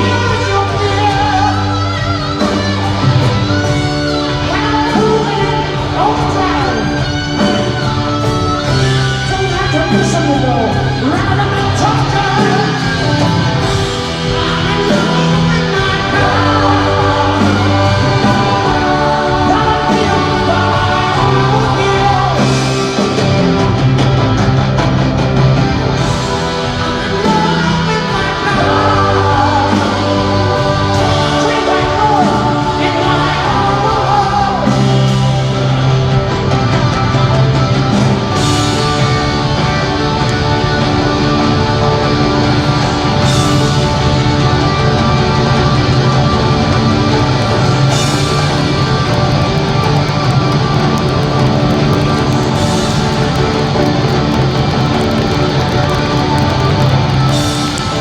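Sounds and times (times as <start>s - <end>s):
lead vocal singing: 0.0s - 24.6s, 25.6s - 37.0s
live rock band: 0.0s - 58.0s.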